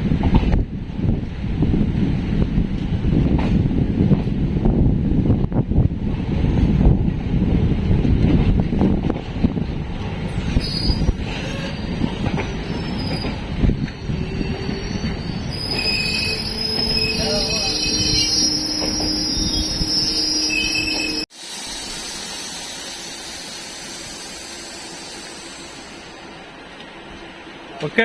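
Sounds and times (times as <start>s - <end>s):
train rumble: 0.0s - 28.0s
train wheels squealing on rails: 10.3s - 26.2s.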